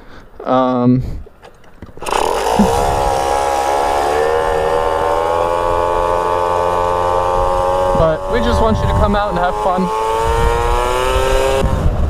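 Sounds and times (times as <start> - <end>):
moped engine at high revs: 2.0 - 12.0.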